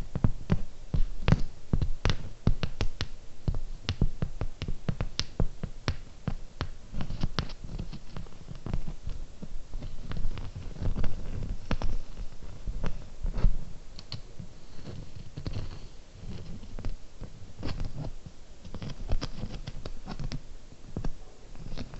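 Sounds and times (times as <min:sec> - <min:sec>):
rubbing: 0:06.9 - 0:20.4.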